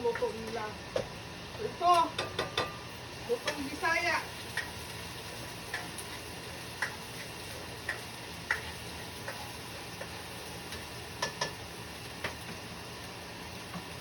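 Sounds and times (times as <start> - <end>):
onions sizzling in a pan: 0.0 - 14.0
utensil clicking against pan: 3.4 - 3.7, 4.5 - 5.0, 5.6 - 11.6.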